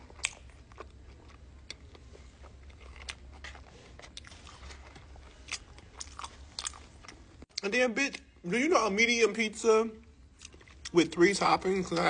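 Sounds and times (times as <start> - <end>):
man chewing with crunches: 0.0 - 7.6, 10.2 - 11.0
low steady hum: 0.0 - 12.0.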